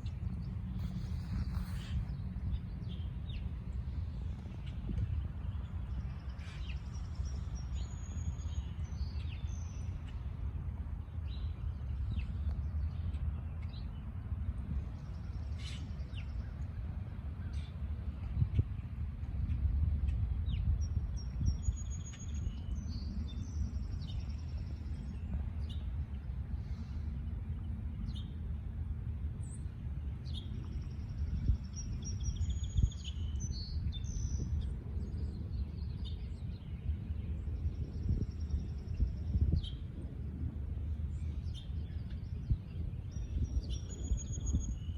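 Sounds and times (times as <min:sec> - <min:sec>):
low rumble: 0:00.0 - 0:44.9
small birds chirping: 0:29.4 - 0:40.1, 0:40.9 - 0:44.9.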